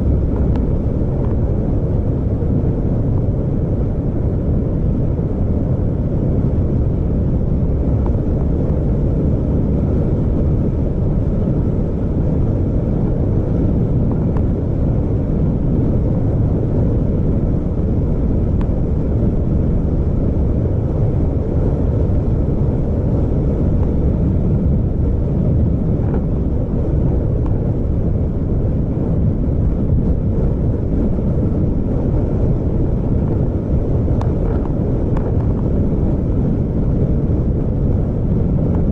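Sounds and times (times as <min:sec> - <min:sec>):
vehicle engine and road noise: 0:00.0 - 0:38.9.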